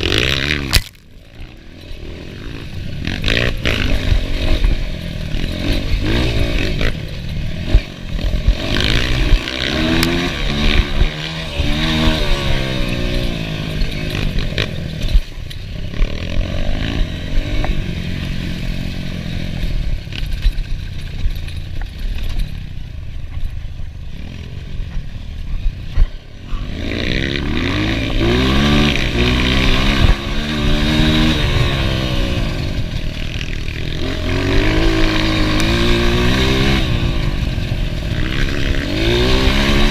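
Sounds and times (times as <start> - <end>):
motorcycle engine revving: 0.0 - 39.9
knocks and clatter: 19.6 - 23.6.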